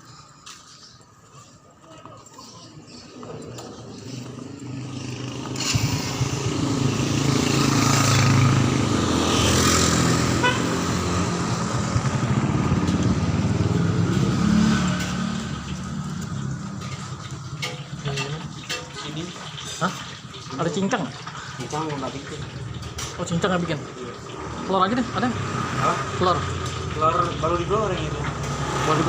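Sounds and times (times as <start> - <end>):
vehicle engine running: 3.2 - 18.8.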